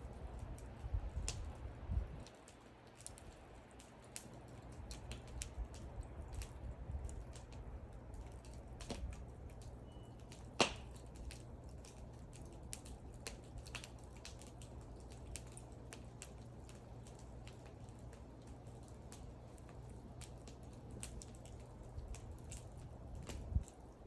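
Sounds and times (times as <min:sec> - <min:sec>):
wood fire crackling: 0:00.0 - 0:24.0
loud pop of burning wood: 0:07.1 - 0:14.6, 0:20.2 - 0:23.7.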